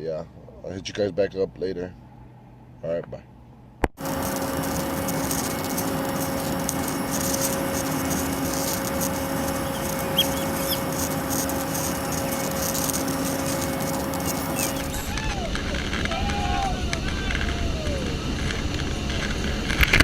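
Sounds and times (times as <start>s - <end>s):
constant low hum: 0.0s - 20.0s
faint high chirps: 4.0s - 15.4s
aircraft engines droning: 4.0s - 20.0s.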